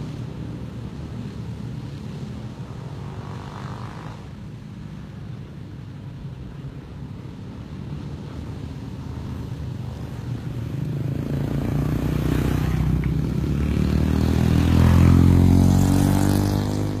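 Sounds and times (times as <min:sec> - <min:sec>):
motorcycle engine approaching: 0:09.9 - 0:17.0.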